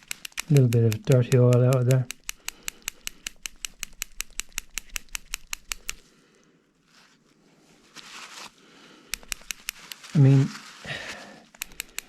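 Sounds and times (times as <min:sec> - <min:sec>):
valve plunger clicking: 0:00.0 - 0:06.0, 0:09.1 - 0:10.0, 0:11.5 - 0:12.0.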